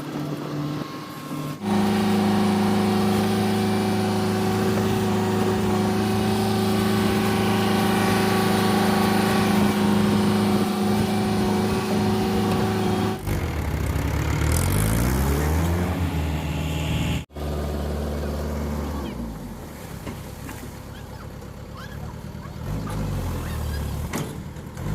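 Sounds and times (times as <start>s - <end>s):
engine revving up: 0.0s - 19.6s, 22.5s - 24.9s
diesel engine running: 0.0s - 24.9s.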